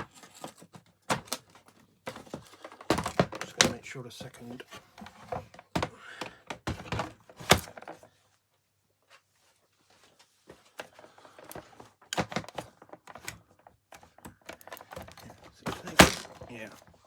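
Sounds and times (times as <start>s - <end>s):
small parts clicking and knocking: 11.3s - 16.5s.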